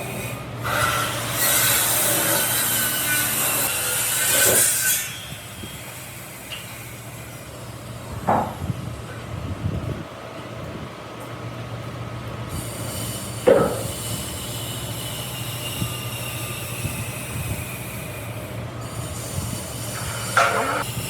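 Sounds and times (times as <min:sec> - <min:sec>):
screeching squeals: 0:12.5 - 0:21.0.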